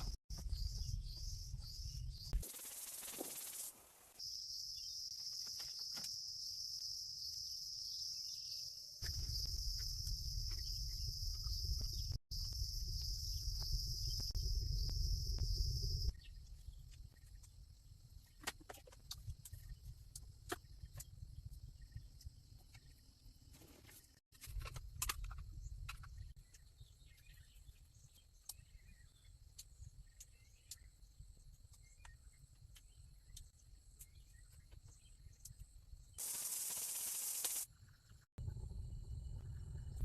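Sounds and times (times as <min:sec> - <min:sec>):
insects chirping: 0:00.0 - 0:18.4, 0:25.5 - 0:40.0
low rumble: 0:38.4 - 0:40.0.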